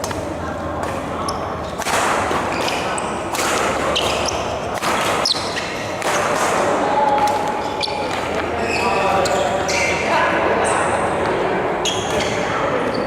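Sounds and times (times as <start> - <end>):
racket hitting shuttlecock: 0.0 - 8.6
shoes squeaking on floor: 1.2 - 1.8, 2.5 - 6.4, 7.5 - 10.9, 11.8 - 13.0.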